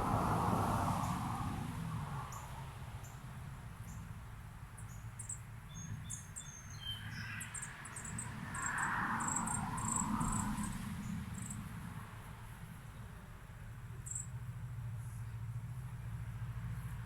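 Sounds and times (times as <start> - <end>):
small songbirds chirping: 4.8 - 10.4, 14.0 - 14.3.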